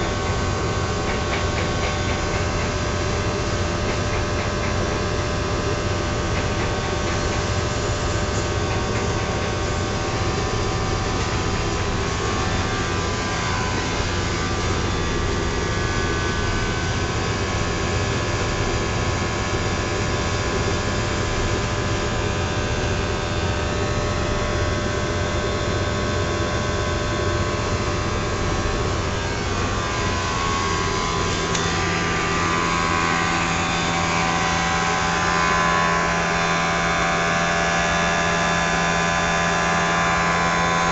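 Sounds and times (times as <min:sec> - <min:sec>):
low steady hum: 0:00.0 - 0:40.9
blower motor whirring: 0:23.4 - 0:40.9.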